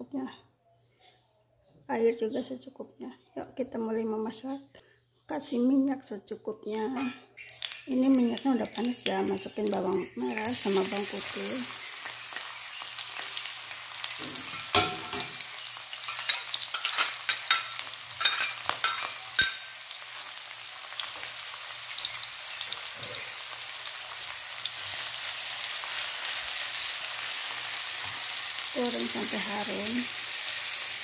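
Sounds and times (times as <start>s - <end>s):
shallots sizzling in hot oil: 7.4s - 31.0s.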